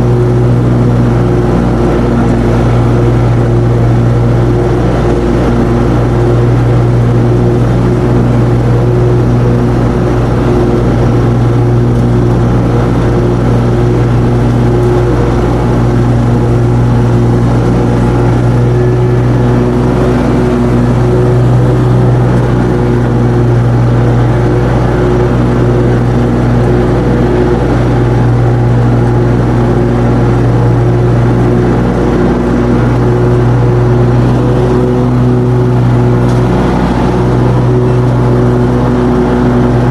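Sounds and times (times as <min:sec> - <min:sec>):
mower engine droning: 0:00.0 - 0:39.9.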